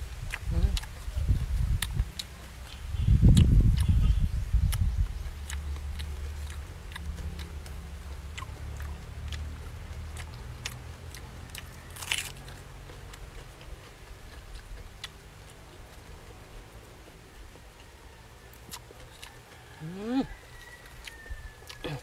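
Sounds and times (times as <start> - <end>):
person chewing food: 0.0 - 22.0
loud crunch: 10.2 - 15.6.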